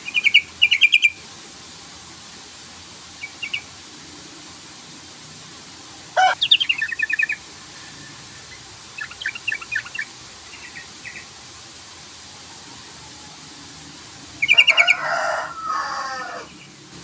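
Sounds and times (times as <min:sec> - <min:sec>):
bird chattering call: 0:06.2 - 0:07.4.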